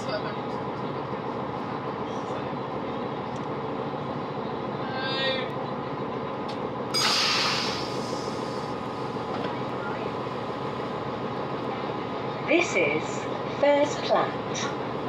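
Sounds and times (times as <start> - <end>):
train running rumble: 0.0 - 15.0
high brake squeal: 7.0 - 8.6
air release hiss: 7.0 - 8.7.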